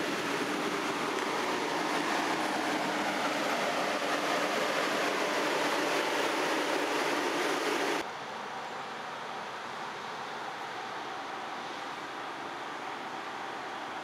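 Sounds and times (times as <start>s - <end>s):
steady hiss: 0.0s - 8.0s
train wheels rushing past: 0.0s - 8.0s.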